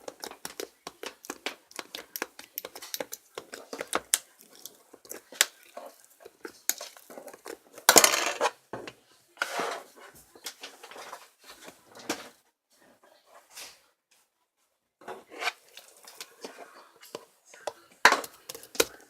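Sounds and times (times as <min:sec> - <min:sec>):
small hard objects clattering: 0:00.0 - 0:08.5.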